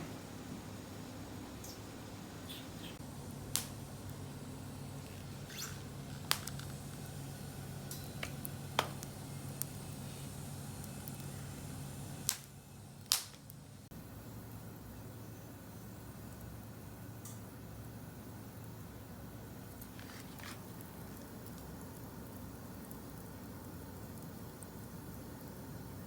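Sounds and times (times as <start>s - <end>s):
wood fire crackling and popping: 3.0s - 13.9s, 17.2s - 26.0s.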